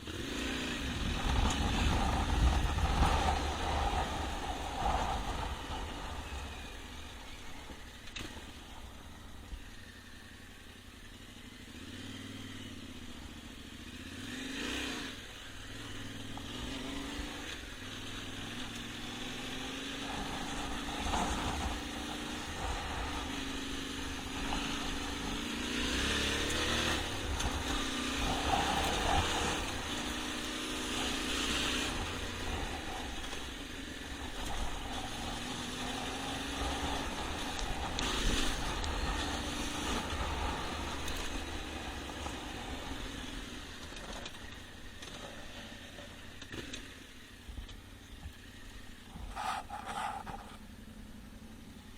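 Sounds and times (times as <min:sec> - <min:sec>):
motorcycle engine revving off-road: 0:00.0 - 0:51.9.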